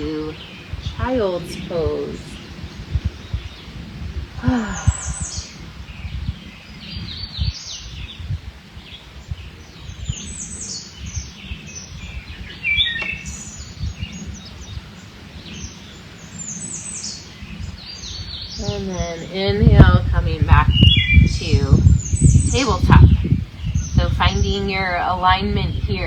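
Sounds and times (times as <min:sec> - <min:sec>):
low rumble: 0:00.0 - 0:15.7
songbirds chirping and singing: 0:00.0 - 0:26.0.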